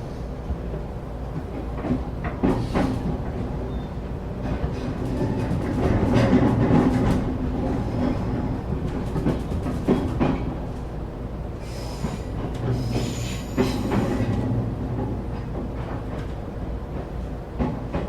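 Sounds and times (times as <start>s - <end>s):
train rumbling on rails: 0.0s - 18.0s
high wheel squeal: 11.6s - 14.3s.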